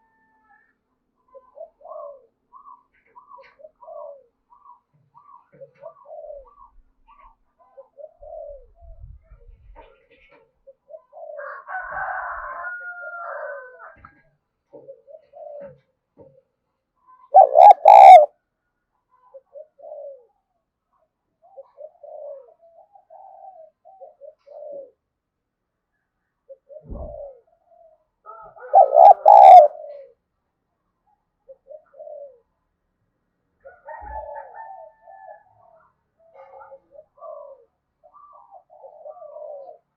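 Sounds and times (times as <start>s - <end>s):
doves cooing: 1.3s - 8.8s, 9.8s - 12.6s, 14.8s - 15.9s, 17.3s - 18.3s, 19.4s - 20.3s, 21.4s - 25.1s, 26.6s - 30.2s, 31.5s - 32.5s, 33.6s - 39.9s
loud three-part bird call: 17.3s - 18.3s, 28.6s - 29.7s.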